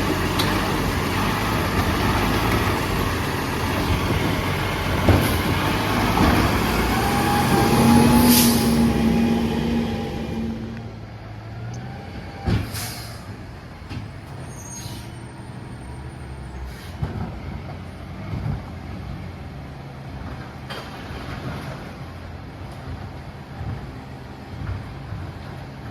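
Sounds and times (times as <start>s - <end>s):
garbage truck diesel engine: 0.0s - 25.9s
air brake hisses: 8.2s - 9.0s, 12.6s - 13.4s, 14.5s - 15.2s, 16.6s - 17.0s.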